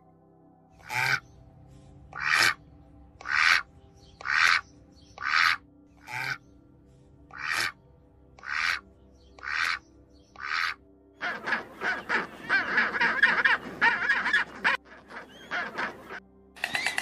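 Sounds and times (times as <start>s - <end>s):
penguin calling: 0.8s - 1.2s, 2.2s - 2.6s, 3.2s - 4.6s, 5.2s - 6.4s, 7.3s - 7.8s, 8.4s - 8.8s, 9.4s - 16.2s
shelduck calling: 0.8s - 1.2s, 2.2s - 2.6s, 3.2s - 4.6s, 5.2s - 6.4s, 7.3s - 7.8s, 8.4s - 8.8s, 9.4s - 9.8s, 10.4s - 17.0s.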